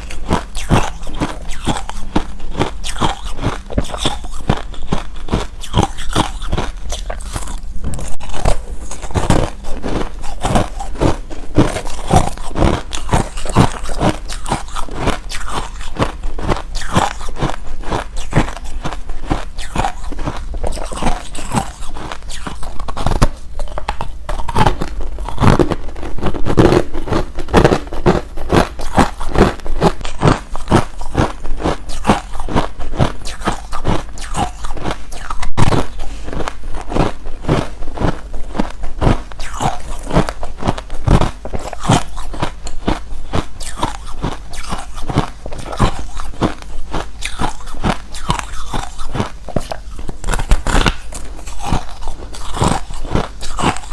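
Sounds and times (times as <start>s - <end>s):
chewing crunchy ice: 0.0s - 53.9s.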